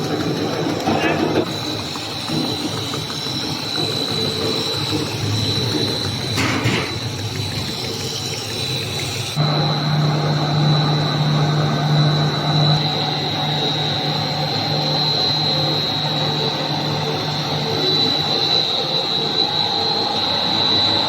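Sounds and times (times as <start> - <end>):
machinery hum with high whine: 0.0 - 21.0
low machine hum: 5.2 - 19.9.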